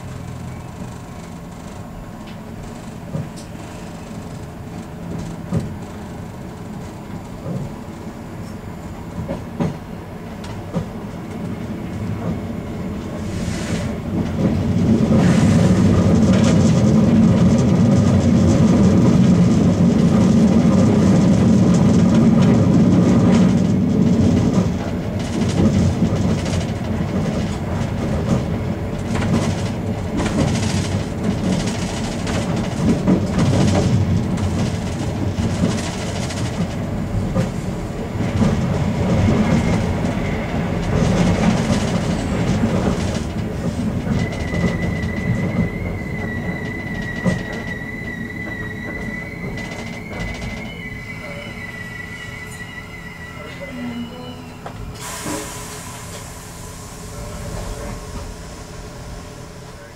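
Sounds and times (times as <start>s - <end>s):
train rumble from inside cab: 0.0s - 59.9s
wheels clicking over rail joints: 14.2s - 47.8s
faint high brake squeal: 44.0s - 59.9s.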